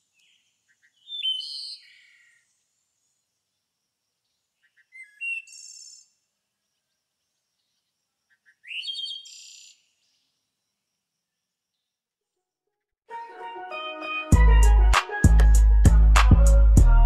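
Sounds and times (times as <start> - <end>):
songbird singing: 0.0 - 12.2.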